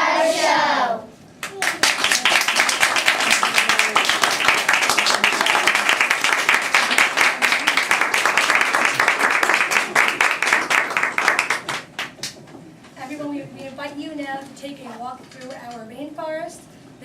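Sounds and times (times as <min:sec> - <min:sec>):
audience applauding: 0:01.4 - 0:12.4.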